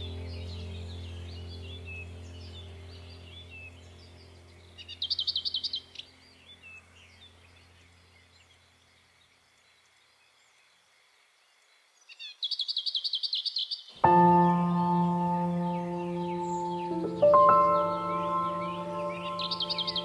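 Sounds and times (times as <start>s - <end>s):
low steady drone: 0.0s - 8.2s, 14.0s - 20.0s
faint bird chirps: 0.0s - 20.0s
bird trilling: 4.8s - 6.1s, 12.2s - 20.0s.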